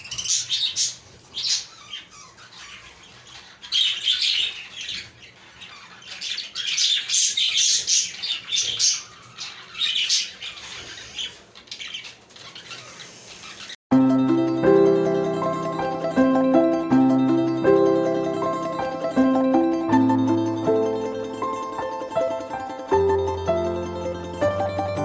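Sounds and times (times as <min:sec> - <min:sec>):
budgerigars chirping and warbling: 0:00.0 - 0:13.8.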